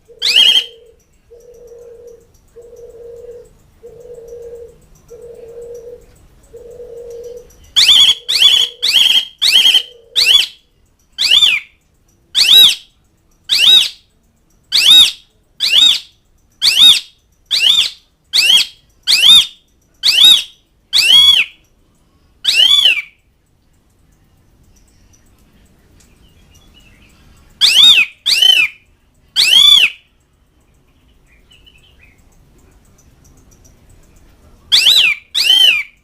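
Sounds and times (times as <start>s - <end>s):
starling harsh calls: 0.1s - 0.9s, 6.6s - 10.6s, 11.2s - 11.7s, 12.4s - 12.9s, 13.5s - 14.0s, 14.7s - 21.7s, 22.4s - 23.2s, 27.6s - 28.8s, 29.4s - 30.1s, 34.7s - 36.0s.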